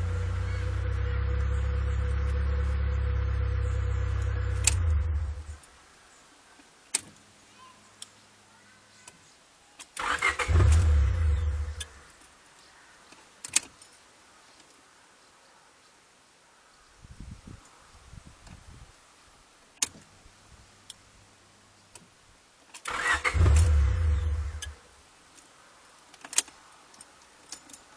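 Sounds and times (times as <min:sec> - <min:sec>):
car engine cranking: 0:00.0 - 0:05.6, 0:10.0 - 0:12.0, 0:22.8 - 0:24.8
car engine running: 0:00.0 - 0:05.6.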